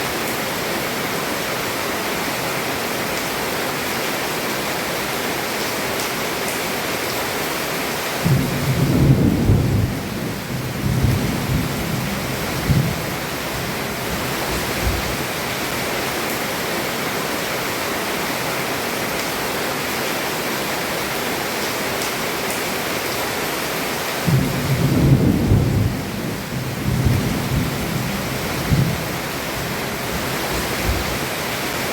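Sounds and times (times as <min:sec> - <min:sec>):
heavy rain pouring: 0:00.0 - 0:31.9
low thunder rumbling: 0:08.2 - 0:15.2, 0:24.3 - 0:31.3.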